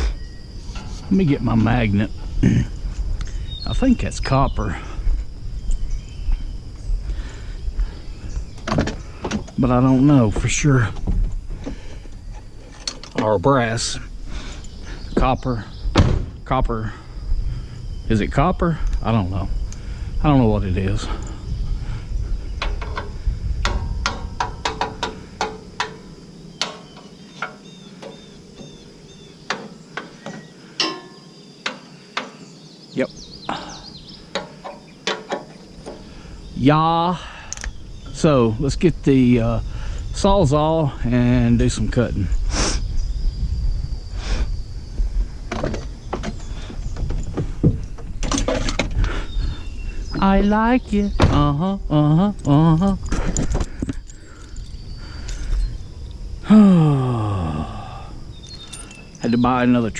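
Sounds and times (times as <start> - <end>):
tools clattering while handled: 11.0 - 13.3, 29.5 - 32.4, 34.3 - 36.0, 58.6 - 59.2
tool tapping on metal: 22.6 - 28.8, 29.5 - 32.4, 34.3 - 36.0.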